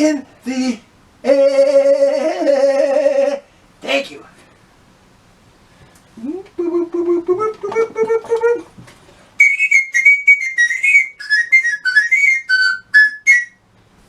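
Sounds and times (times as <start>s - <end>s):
whistled tune: 9.4s - 13.6s.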